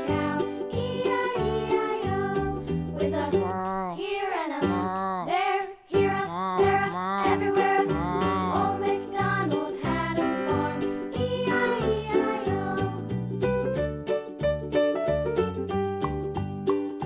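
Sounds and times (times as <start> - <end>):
children's music with steady beat: 0.0 - 13.2.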